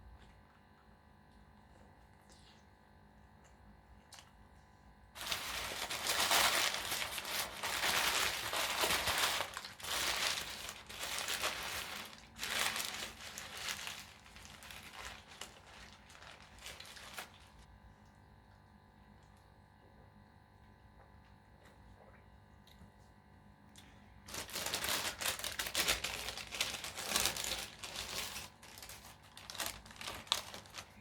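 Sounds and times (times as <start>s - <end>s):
food packaging crinkling: 5.2s - 17.7s, 24.2s - 31.0s.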